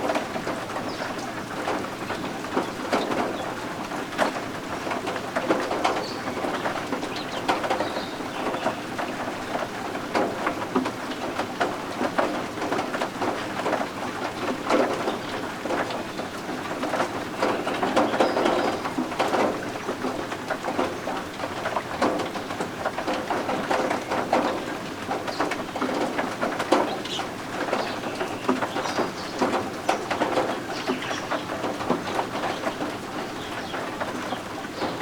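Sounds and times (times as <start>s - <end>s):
rain falling steadily: 0.0s - 35.0s
chicks peeping softly: 4.3s - 10.3s.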